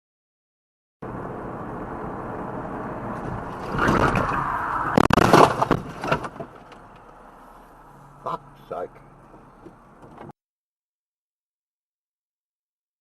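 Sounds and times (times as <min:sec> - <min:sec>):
car driving noise: 0:01.0 - 0:10.3
car collision bangs: 0:03.6 - 0:06.9.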